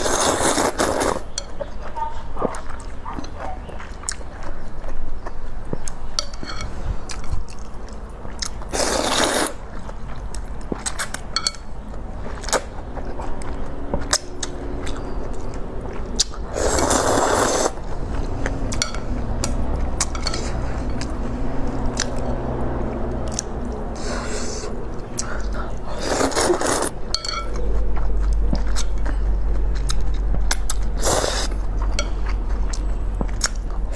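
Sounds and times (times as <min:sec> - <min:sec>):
noisy noodle slurps: 0:00.0 - 0:01.2, 0:08.7 - 0:09.6, 0:16.5 - 0:17.8, 0:25.9 - 0:26.9, 0:31.0 - 0:31.6
wet chewing of noodles: 0:00.0 - 0:33.9.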